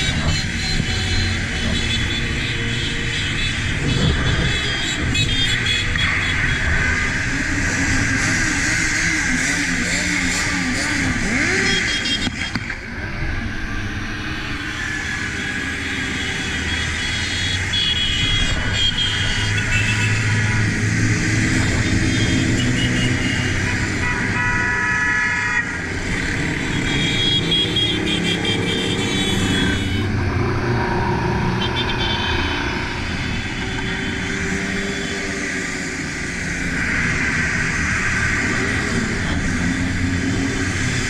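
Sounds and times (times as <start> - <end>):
horns honking: 0.0 - 7.4, 9.4 - 12.7, 15.7 - 20.7, 21.4 - 30.4, 31.5 - 35.6
motorcycle engines running: 0.0 - 13.4.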